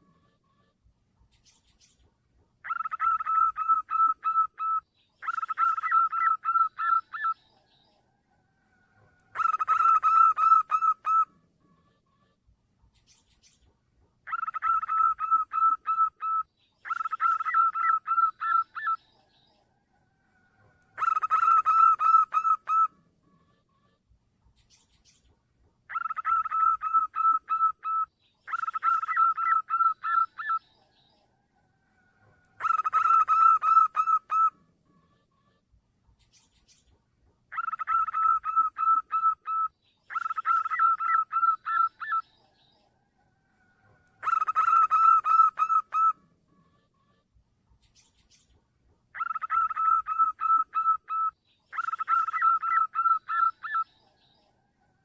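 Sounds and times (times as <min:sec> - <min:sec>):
dove call pulsing notes: 0:02.6 - 0:07.4, 0:08.8 - 0:11.3, 0:14.2 - 0:19.0, 0:20.4 - 0:23.0, 0:25.9 - 0:30.6, 0:32.0 - 0:34.6, 0:37.5 - 0:42.3, 0:43.7 - 0:46.2, 0:49.1 - 0:53.9.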